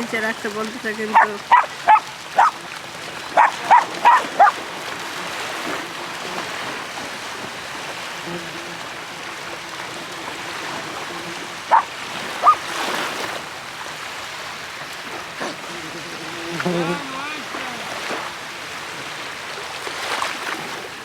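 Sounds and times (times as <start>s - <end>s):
sea surf: 0.0s - 21.0s
dog barking: 1.1s - 2.6s, 3.3s - 4.6s, 11.7s - 12.7s, 15.4s - 15.8s.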